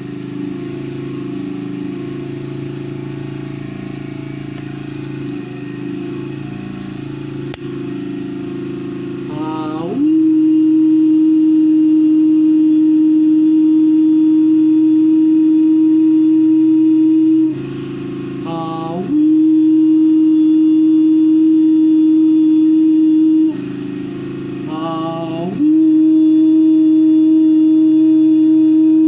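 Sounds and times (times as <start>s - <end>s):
person humming long notes: 9.3s - 17.7s, 18.4s - 23.6s, 24.6s - 29.0s.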